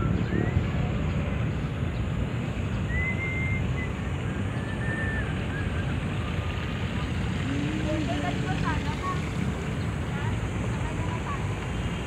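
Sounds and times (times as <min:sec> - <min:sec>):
birds whistling: 0:00.0 - 0:01.2, 0:02.7 - 0:06.4
low outdoor rumble: 0:00.0 - 0:12.0.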